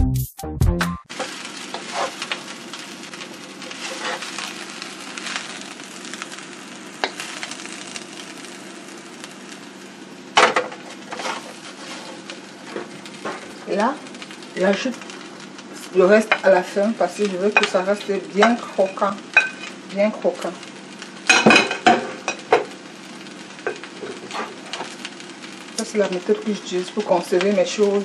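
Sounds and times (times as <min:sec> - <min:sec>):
scraping and clattering in wok: 0:01.1 - 0:02.5, 0:03.5 - 0:05.6, 0:10.4 - 0:13.8, 0:18.5 - 0:19.8, 0:23.6 - 0:25.0
fried rice sizzling in wok: 0:01.1 - 0:28.0.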